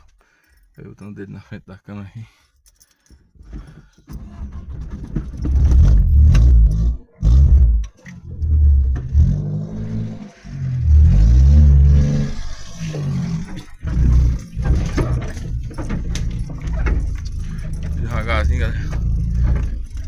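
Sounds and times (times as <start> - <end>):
car engine revving: 5.4 - 20.0.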